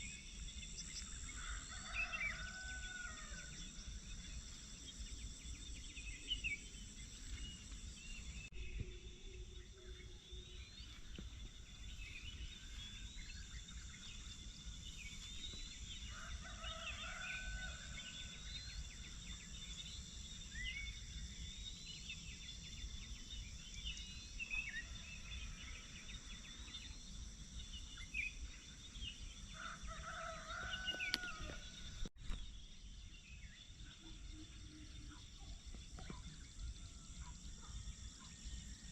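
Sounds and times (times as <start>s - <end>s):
steady high insect drone: 0.0s - 38.9s
rooster crowing: 1.4s - 3.6s, 16.1s - 18.4s, 29.6s - 31.8s.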